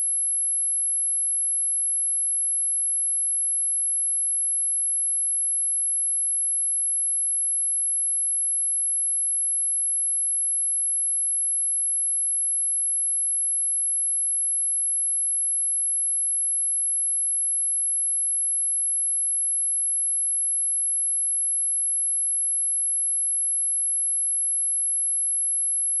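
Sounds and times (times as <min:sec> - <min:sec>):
high-pitched sine test tone: 0:11.8 - 0:26.0.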